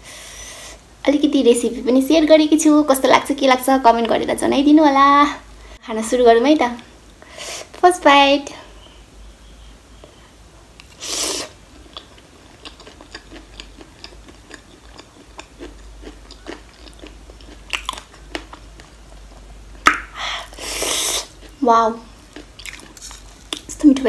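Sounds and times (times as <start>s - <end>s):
crunchy chewing: 10.8s - 19.5s, 20.5s - 23.8s.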